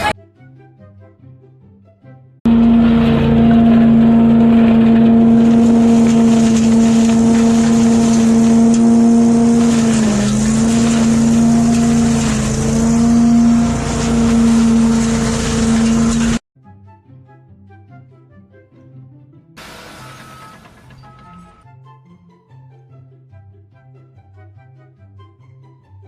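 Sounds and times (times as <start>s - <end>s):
motor running at high speed: 2.5s - 16.4s.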